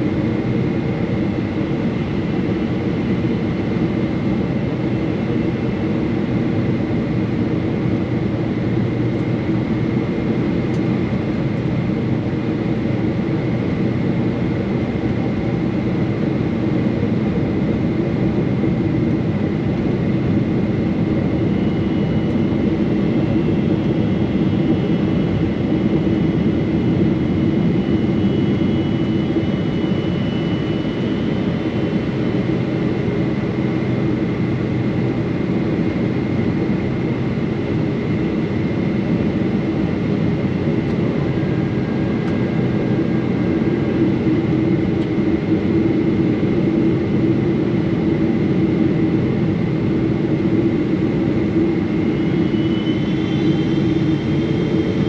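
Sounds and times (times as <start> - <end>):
faint high engine whine: 0.0 - 55.0
higher whine: 49.6 - 55.0.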